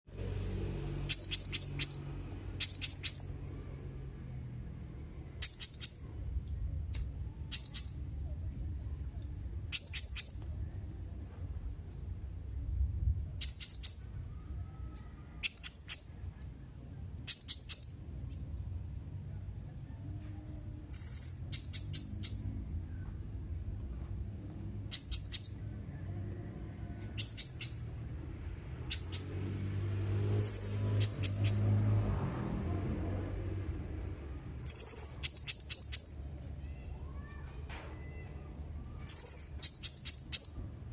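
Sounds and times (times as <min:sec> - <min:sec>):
parrot high chirps: 0:01.1 - 0:03.4, 0:05.4 - 0:06.2, 0:07.4 - 0:08.1, 0:09.7 - 0:10.5, 0:13.4 - 0:16.3, 0:17.2 - 0:18.1, 0:20.9 - 0:22.6, 0:24.9 - 0:25.6, 0:27.0 - 0:28.0, 0:28.8 - 0:29.4, 0:30.4 - 0:31.7, 0:34.6 - 0:37.4, 0:38.0 - 0:40.7.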